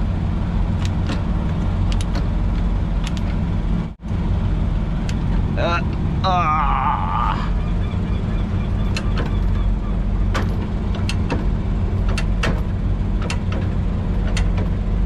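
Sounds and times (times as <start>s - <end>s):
diesel engine idling: 0.0s - 15.0s
sharp clicks and knocks: 0.8s - 3.4s, 8.8s - 9.6s, 10.3s - 14.8s.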